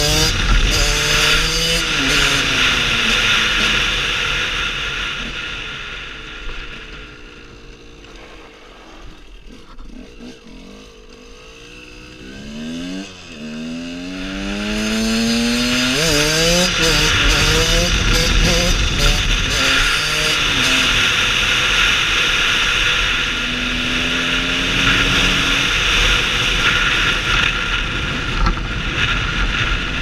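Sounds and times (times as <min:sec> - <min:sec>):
motorcycle engine revving: 0:00.0 - 0:30.0
wind rushing over microphone: 0:14.8 - 0:23.2.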